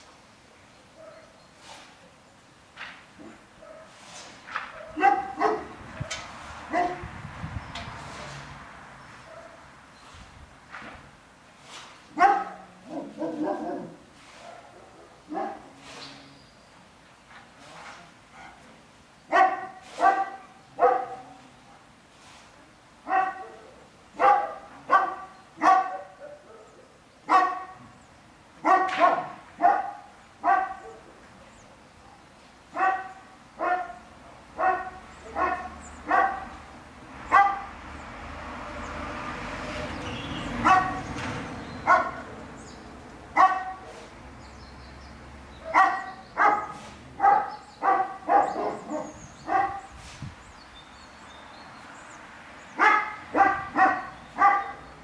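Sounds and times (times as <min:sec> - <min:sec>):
dog barking: 0:01.0 - 0:01.4, 0:03.2 - 0:07.1, 0:09.2 - 0:09.7, 0:12.1 - 0:16.1, 0:18.4 - 0:18.7, 0:19.3 - 0:21.4, 0:23.0 - 0:27.9, 0:28.6 - 0:31.2, 0:32.1 - 0:36.6, 0:37.3 - 0:37.7, 0:40.6 - 0:41.1, 0:41.8 - 0:42.4, 0:43.3 - 0:44.2, 0:45.6 - 0:49.9, 0:52.8 - 0:54.9
hiss: 0:01.6 - 0:02.1, 0:11.6 - 0:12.1.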